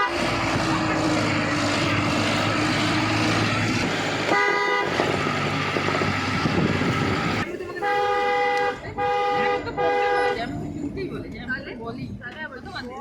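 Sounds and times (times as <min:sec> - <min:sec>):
car engine hum and road rush: 0:00.0 - 0:13.0
car horn toot: 0:04.2 - 0:05.4, 0:07.8 - 0:10.5.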